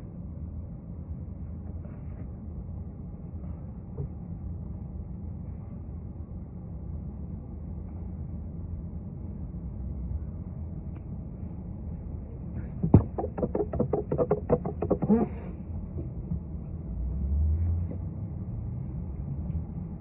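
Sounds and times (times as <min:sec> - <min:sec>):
bus engine rumble: 0:00.0 - 0:20.0
rapid knocks: 0:12.8 - 0:15.3.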